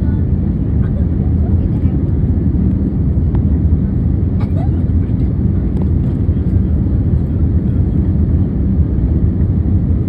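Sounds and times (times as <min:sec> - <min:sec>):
airliner engines rumbling: 0:00.0 - 0:10.0.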